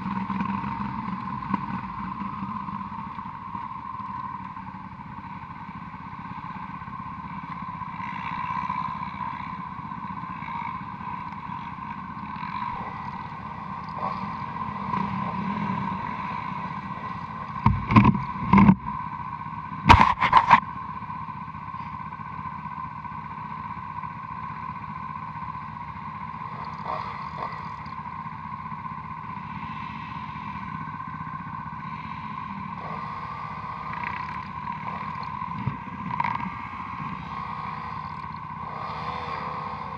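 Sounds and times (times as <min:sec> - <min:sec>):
motorcycle engine running: 0:00.0 - 0:39.9
loud knocks: 0:17.6 - 0:18.8.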